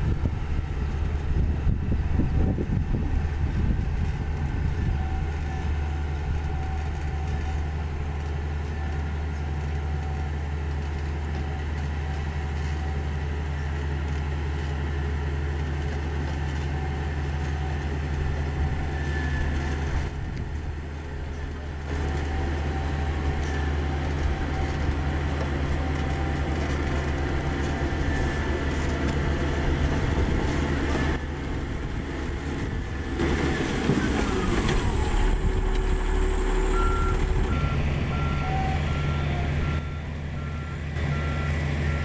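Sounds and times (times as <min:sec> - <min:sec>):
diesel engine droning: 0:00.0 - 0:42.0.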